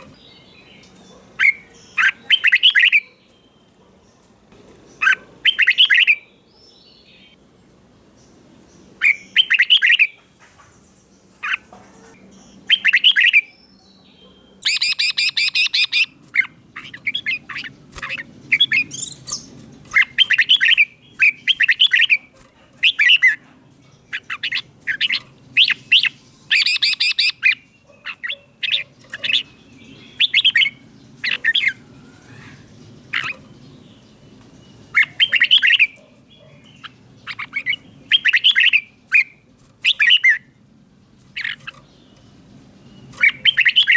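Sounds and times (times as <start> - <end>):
bird warbling song: 0.0 - 43.9
buzzy bird chattering: 5.0 - 6.2, 14.6 - 23.4, 24.0 - 33.6, 34.9 - 40.4, 41.3 - 42.0.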